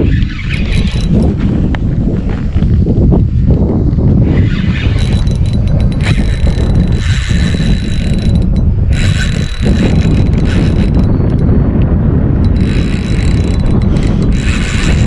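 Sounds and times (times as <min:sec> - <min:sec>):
fishing reel drag buzzing: 0:00.0 - 0:01.4, 0:04.2 - 0:11.6, 0:12.4 - 0:15.0
wind buffeting microphone: 0:00.0 - 0:15.0.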